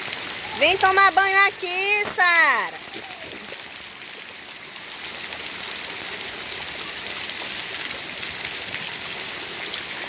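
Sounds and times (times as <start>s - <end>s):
heavy rain on street: 0.0s - 4.6s.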